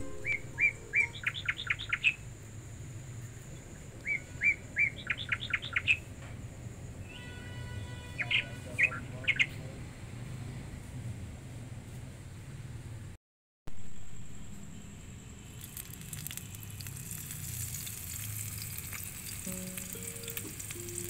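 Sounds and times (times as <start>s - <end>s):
songbird chirping: 0.0s - 6.4s, 8.0s - 9.8s, 19.4s - 21.0s.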